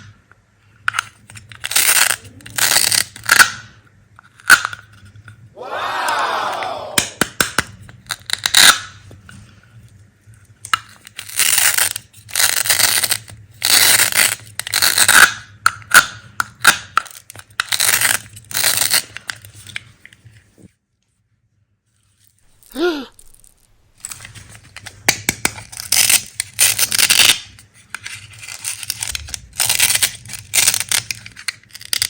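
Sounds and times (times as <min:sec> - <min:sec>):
candy pieces clicking: 0:00.9 - 0:03.7, 0:07.0 - 0:09.0, 0:10.6 - 0:19.5, 0:22.5 - 0:32.0
knife rasping through hard candy: 0:01.0 - 0:03.4, 0:10.9 - 0:15.4, 0:16.5 - 0:19.6, 0:24.0 - 0:32.0.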